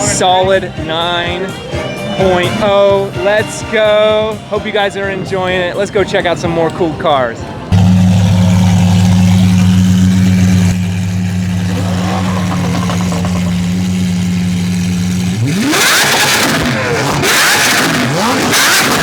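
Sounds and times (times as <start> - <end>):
car engine droning: 7.6 - 19.0
car engine revving: 7.7 - 19.0.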